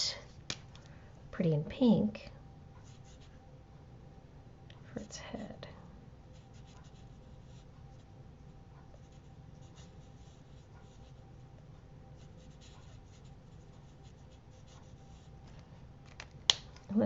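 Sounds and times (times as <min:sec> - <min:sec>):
low room hum: 0:00.0 - 0:17.0
marker scratching on cardstock: 0:06.3 - 0:08.1, 0:09.0 - 0:11.3, 0:12.2 - 0:15.3.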